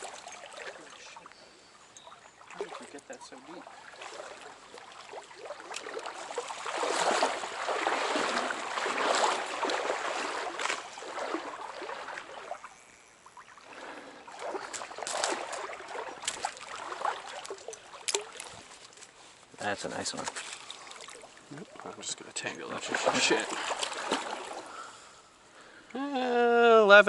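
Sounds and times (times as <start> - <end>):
stream water sloshing and splashing: 0.0 - 25.6
short sharp splashes: 2.2 - 19.1, 20.1 - 22.0, 22.8 - 24.9.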